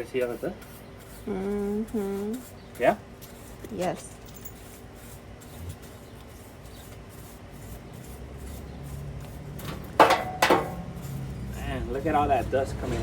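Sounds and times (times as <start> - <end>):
dust rubbing off motor: 4.7 - 9.9.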